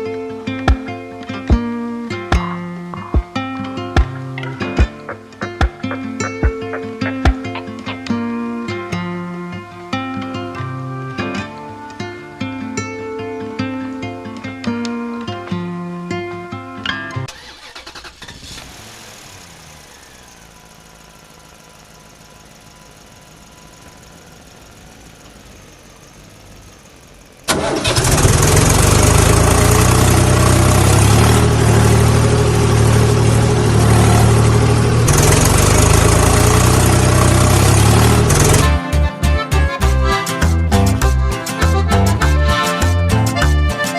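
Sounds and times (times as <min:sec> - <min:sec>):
tractor engine rumbling: 0:04.0 - 0:08.1, 0:17.2 - 0:19.3, 0:20.0 - 0:43.8.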